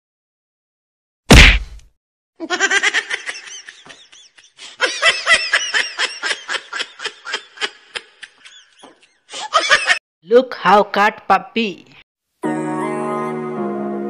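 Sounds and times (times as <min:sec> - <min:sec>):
high-pitched laughter giggles: 0:02.4 - 0:10.0.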